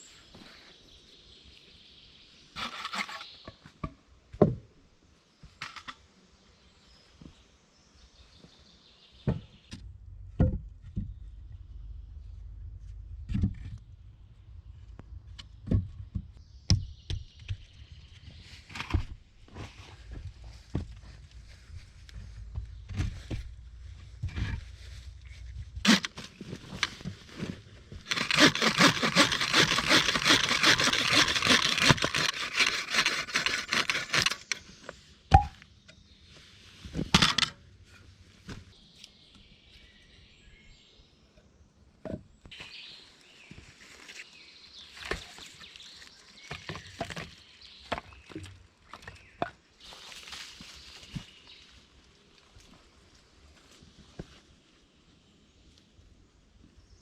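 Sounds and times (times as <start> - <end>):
rasping scrape: 2.6 - 3.3, 28.1 - 34.6.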